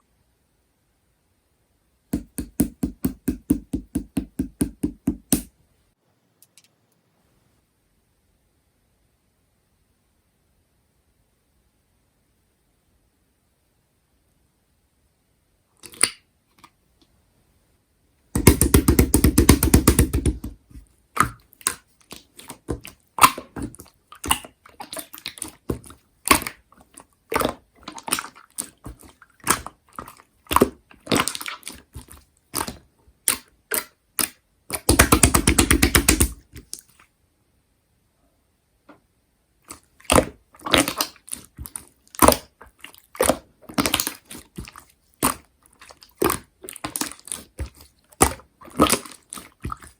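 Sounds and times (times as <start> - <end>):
dense crackling of slime: 40.0 - 49.9
slime squeezed by hand: 40.0 - 49.9.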